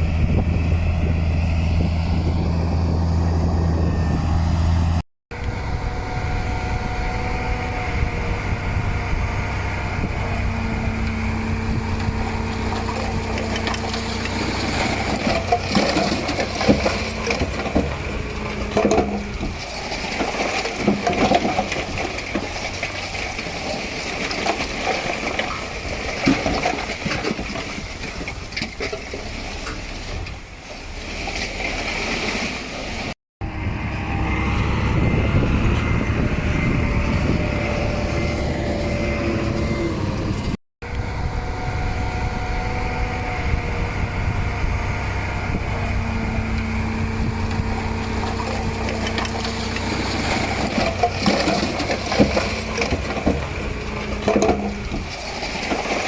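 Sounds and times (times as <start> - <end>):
heavy diesel machinery working: 0.0 - 56.0
knocking and clatter: 12.7 - 29.2, 48.4 - 56.0.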